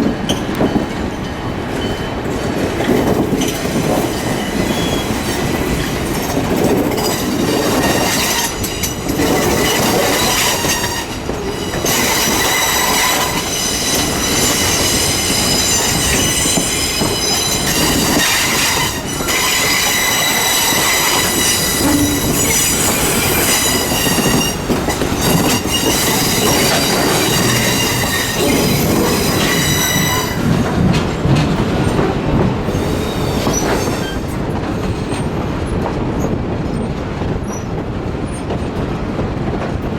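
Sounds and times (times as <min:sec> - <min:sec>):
train running noise: 0:00.0 - 0:39.9
train wheels squealing: 0:00.3 - 0:02.2, 0:03.4 - 0:30.8, 0:32.7 - 0:35.2.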